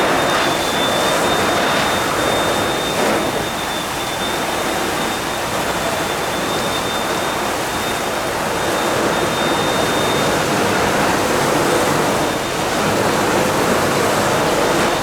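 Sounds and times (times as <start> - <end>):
faint high whistle: 0.0 - 10.9
fire hose spraying water: 0.0 - 15.0.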